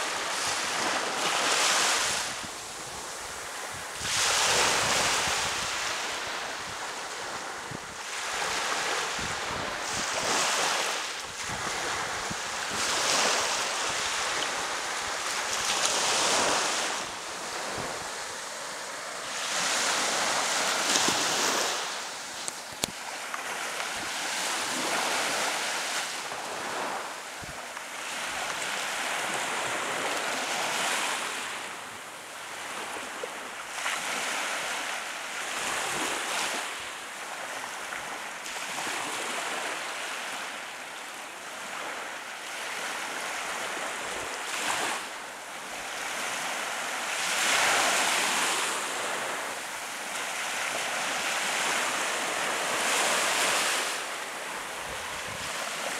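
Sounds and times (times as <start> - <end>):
wind on microphone: 0.0 - 25.6, 50.6 - 55.9
surf washing onto sandy beach: 0.0 - 40.8, 41.4 - 55.9.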